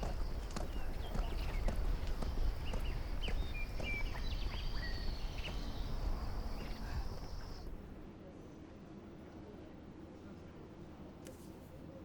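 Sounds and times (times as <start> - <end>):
short knocks like hoof clops: 0.0 - 4.7, 5.4 - 7.0.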